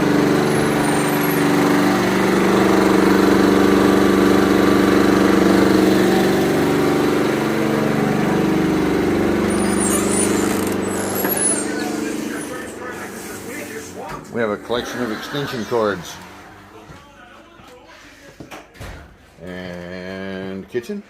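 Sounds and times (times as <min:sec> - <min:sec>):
generator engine droning: 0:00.0 - 0:16.9.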